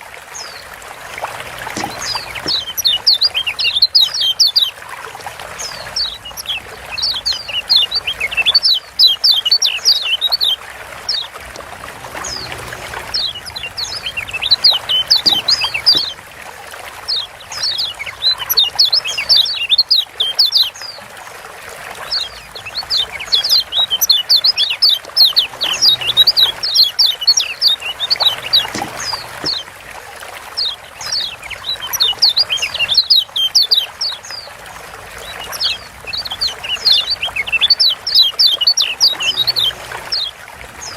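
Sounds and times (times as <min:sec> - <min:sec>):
bird chirping fast high calls: 0:01.4 - 0:04.7, 0:12.2 - 0:16.2, 0:17.1 - 0:20.8, 0:22.1 - 0:29.6, 0:35.2 - 0:40.3.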